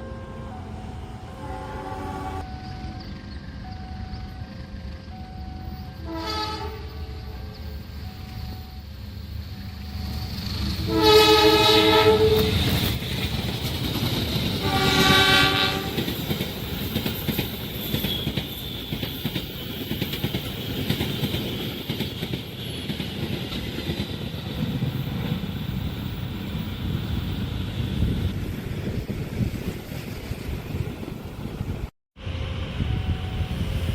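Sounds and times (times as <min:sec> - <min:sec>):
train horn blasts: 0:00.0 - 0:03.0, 0:05.3 - 0:07.6, 0:10.8 - 0:12.8, 0:14.6 - 0:16.1, 0:32.2 - 0:33.8
train rumbling past: 0:00.0 - 0:33.9
wheels clickety-clack: 0:11.6 - 0:31.2.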